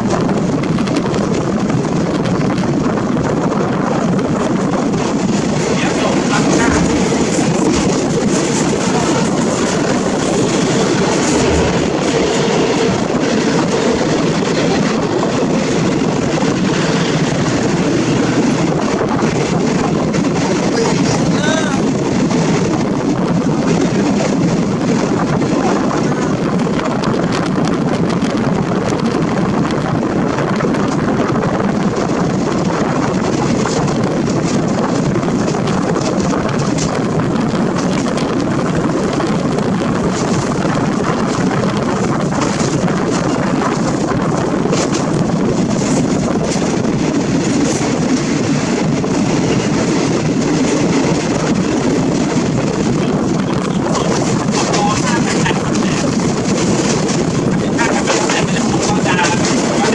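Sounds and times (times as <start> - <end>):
rush of wind: 0.0 - 59.9
train running rumble: 0.0 - 59.9.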